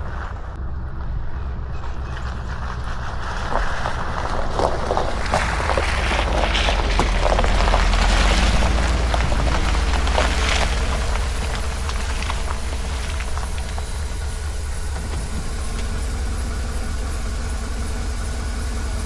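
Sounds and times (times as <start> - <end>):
deep thunder rumble: 5.0 - 18.9
rain pattering: 5.0 - 19.0.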